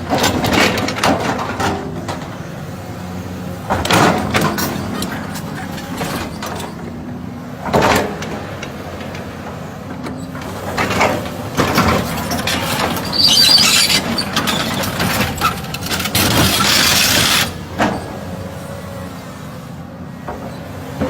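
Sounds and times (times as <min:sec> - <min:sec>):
excavator running: 0:00.0 - 0:21.0
metallic clanks and scraping: 0:03.7 - 0:06.9, 0:10.4 - 0:18.2
harsh hiss and squeal: 0:12.2 - 0:17.6.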